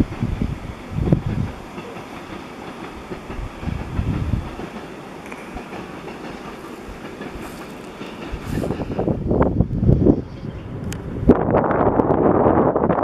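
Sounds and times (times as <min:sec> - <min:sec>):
gusty rumble: 0:00.0 - 0:01.8, 0:02.8 - 0:04.8, 0:06.7 - 0:13.0
train wheels clattering: 0:00.0 - 0:11.2.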